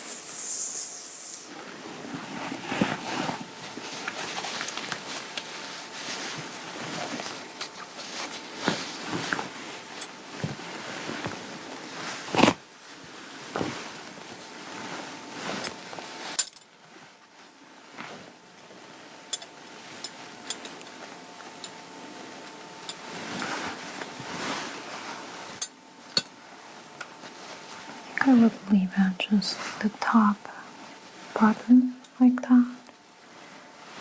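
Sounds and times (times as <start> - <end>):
clothing fabric rustling: 0.0 - 19.1, 22.0 - 25.6.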